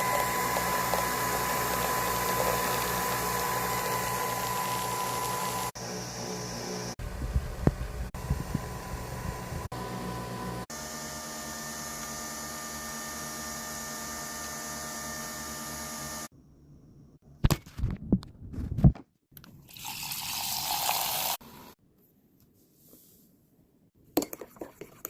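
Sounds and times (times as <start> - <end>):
coffee machine humming: 0.0 - 16.3.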